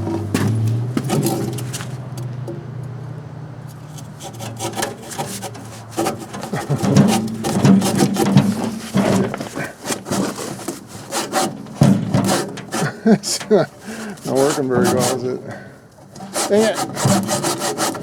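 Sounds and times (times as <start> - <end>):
hand saw rasping through wood: 3.8 - 18.0.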